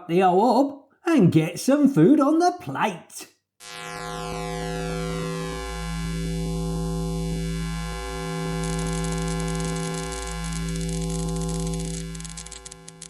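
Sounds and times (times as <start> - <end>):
crackly hiss: 8.3 - 13.0.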